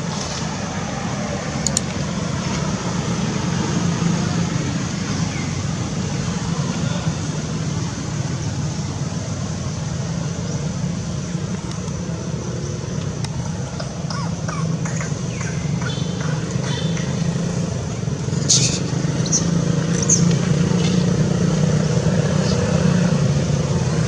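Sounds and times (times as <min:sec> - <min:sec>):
monkeys calling: 0:12.5 - 0:21.2
monkey shrieking: 0:14.1 - 0:15.1.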